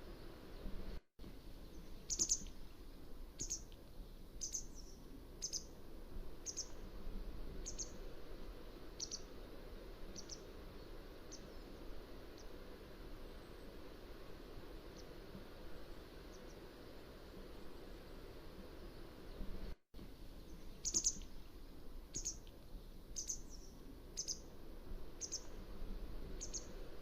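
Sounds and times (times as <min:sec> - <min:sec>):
low background noise: 0:00.0 - 0:27.0
bird chirping: 0:01.6 - 0:02.6, 0:03.4 - 0:03.7, 0:04.4 - 0:05.7, 0:06.4 - 0:06.8, 0:07.6 - 0:08.0, 0:09.0 - 0:09.3, 0:10.1 - 0:11.7, 0:20.4 - 0:21.4, 0:22.1 - 0:22.5, 0:23.2 - 0:24.5, 0:25.2 - 0:25.6, 0:26.4 - 0:26.8.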